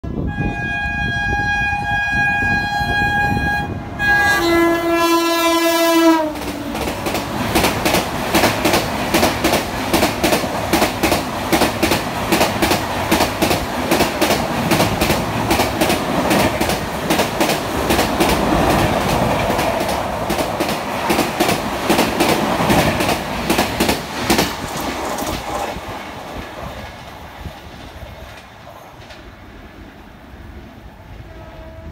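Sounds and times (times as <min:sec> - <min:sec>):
locomotive horn: 0:00.1 - 0:06.8, 0:31.2 - 0:31.9
train wheels clicking over rail joints: 0:06.2 - 0:29.4.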